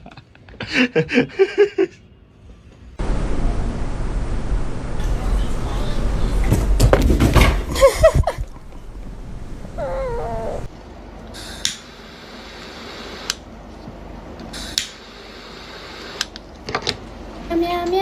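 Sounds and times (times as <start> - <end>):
cat meowing: 9.8 - 10.7.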